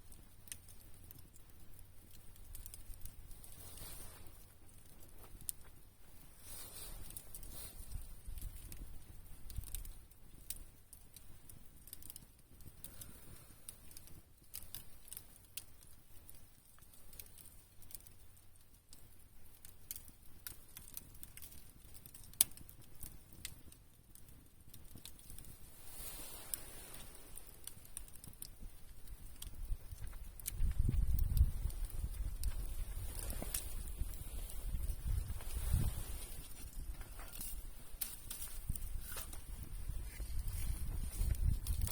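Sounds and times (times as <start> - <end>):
campfire wood crackling: 0.0 - 41.9.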